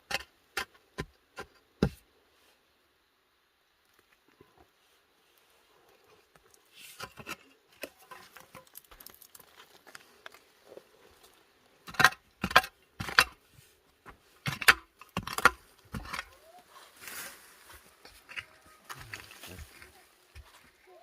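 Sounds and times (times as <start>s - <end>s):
tool striking earth: 0.0s - 2.0s, 11.8s - 16.4s
light scrapes in soil: 4.7s - 11.4s, 15.6s - 20.9s.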